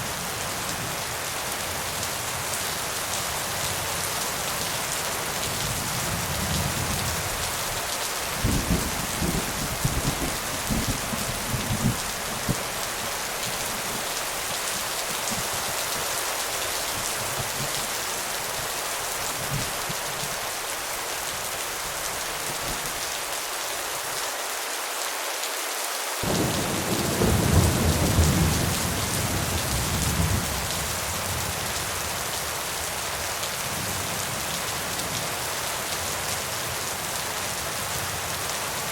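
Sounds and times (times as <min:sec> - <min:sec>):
steady rain: 0:00.0 - 0:38.9
thunder rumbling: 0:08.4 - 0:14.1, 0:26.2 - 0:30.6.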